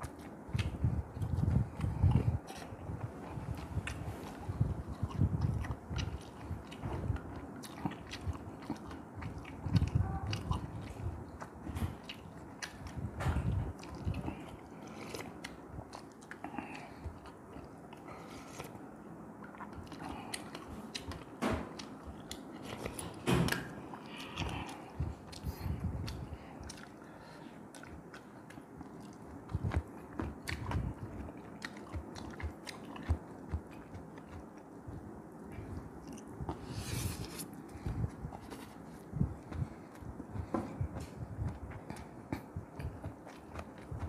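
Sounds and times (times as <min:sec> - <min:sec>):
chewing and biting: 0:00.0 - 0:44.0.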